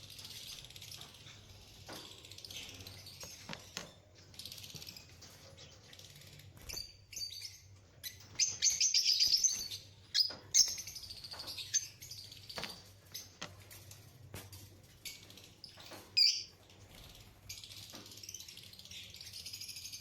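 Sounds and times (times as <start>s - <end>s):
parrot chirping and chattering: 0.0s - 13.5s, 15.0s - 16.6s.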